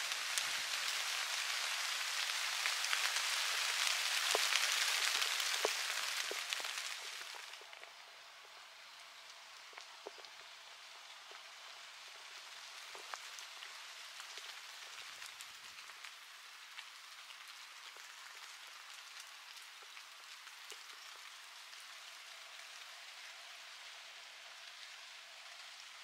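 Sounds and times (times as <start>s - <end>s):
light rain pattering: 0.0s - 26.0s.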